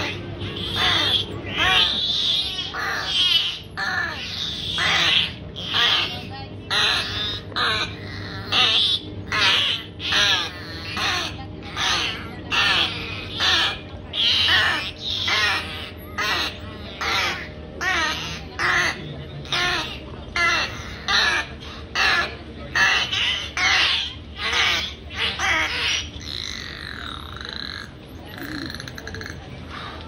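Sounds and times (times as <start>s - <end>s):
bird harsh cawing: 0.0s - 29.4s.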